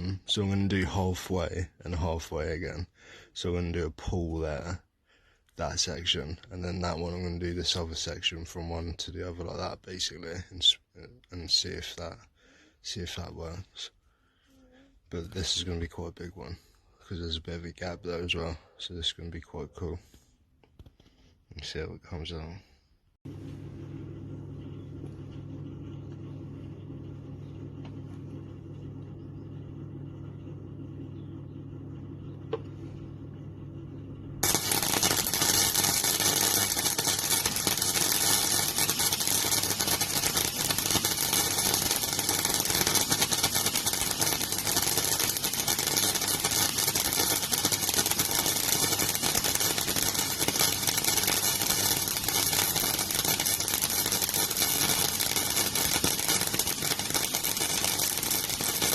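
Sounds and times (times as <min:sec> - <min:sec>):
steady low hum: 0:22.5 - 0:58.9
crackling welding arc: 0:34.4 - 0:58.9.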